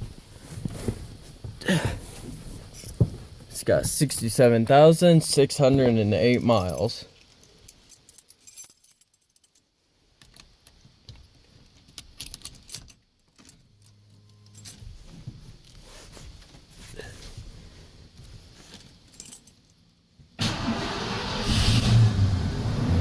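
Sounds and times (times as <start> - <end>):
keys jangling on key ring: 6.4 - 9.6, 12.2 - 14.9
low steady hum: 11.7 - 20.4.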